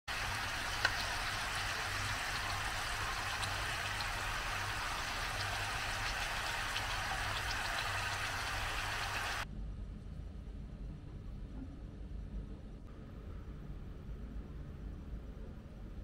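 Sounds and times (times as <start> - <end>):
chicken sizzling in a pan: 0.1 - 9.4.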